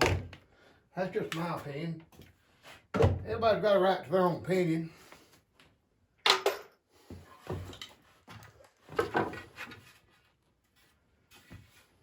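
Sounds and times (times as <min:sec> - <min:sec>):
wooden scrapes and knocks: 0:07.1 - 0:10.3.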